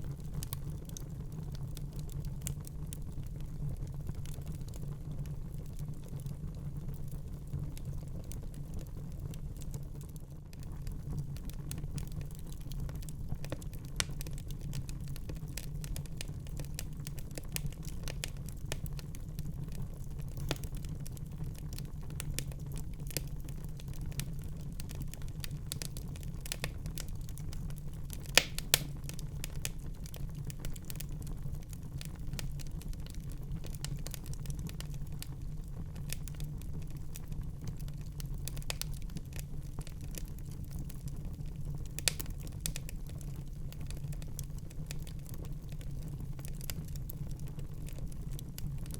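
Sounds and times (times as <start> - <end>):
wood fire crackling: 0.0 - 48.9
loud fire pops: 28.2 - 29.4.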